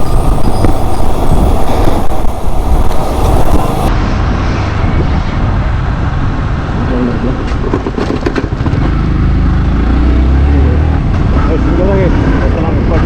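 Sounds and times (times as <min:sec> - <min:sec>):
road noise: 0:00.0 - 0:13.0
wind rushing over microphone: 0:00.0 - 0:13.0
motorcycle engine: 0:07.7 - 0:12.5.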